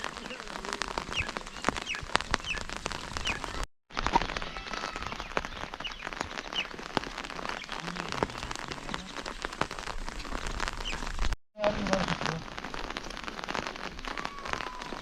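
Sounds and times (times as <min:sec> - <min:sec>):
steady rain falling: 0:00.0 - 0:15.0
small bird chirping: 0:01.0 - 0:03.6.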